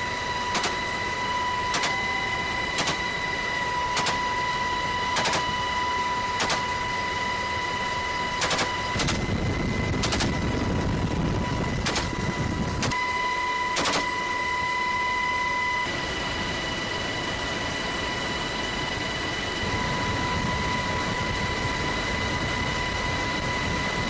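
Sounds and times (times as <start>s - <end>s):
high-pitched helicopter whine: 0.0s - 24.0s
helicopter cabin rumble: 0.1s - 13.0s
sharp cracks: 0.5s - 0.8s, 8.4s - 9.2s, 10.0s - 10.4s, 11.8s - 12.2s.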